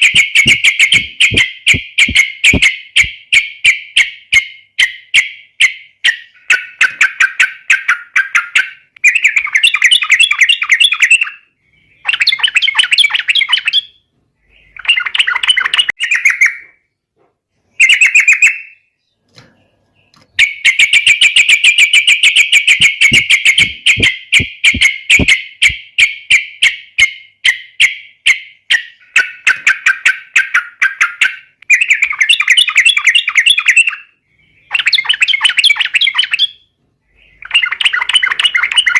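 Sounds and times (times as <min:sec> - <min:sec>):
bird singing chattering phrases: 0:00.0 - 0:03.4, 0:17.7 - 0:25.8, 0:28.6 - 0:38.9.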